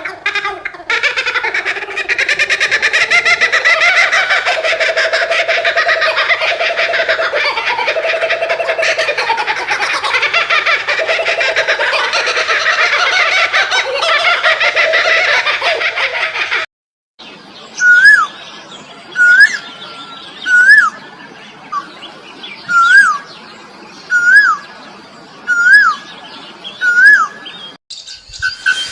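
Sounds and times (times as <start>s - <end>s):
birds chattering: 0.0s - 16.6s.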